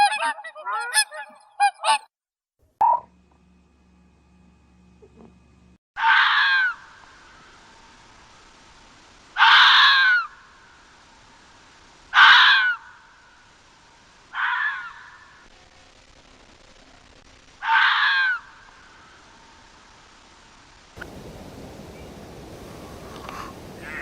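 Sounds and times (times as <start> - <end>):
animal harsh calls: 9.4 - 10.3, 12.1 - 12.9, 14.3 - 15.5, 17.6 - 18.6, 22.8 - 24.0.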